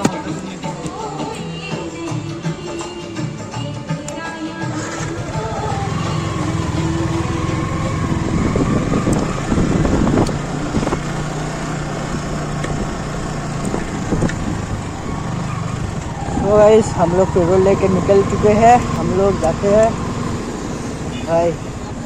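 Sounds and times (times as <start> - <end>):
motorcycle engine running: 4.6 - 22.0.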